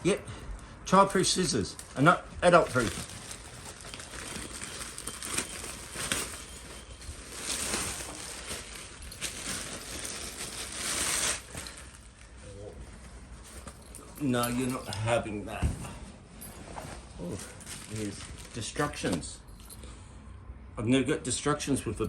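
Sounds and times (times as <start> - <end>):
packaging rustling and crinkling: 1.5 - 14.9, 16.4 - 19.8
packaging crackling: 1.8 - 12.2, 17.5 - 18.9.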